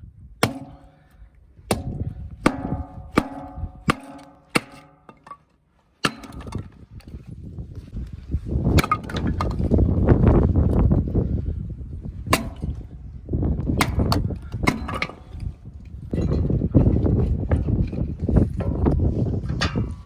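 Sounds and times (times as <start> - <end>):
wind rushing against microphone: 1.4 - 3.9, 6.3 - 20.0
sharp ringing knocks: 1.7 - 5.3.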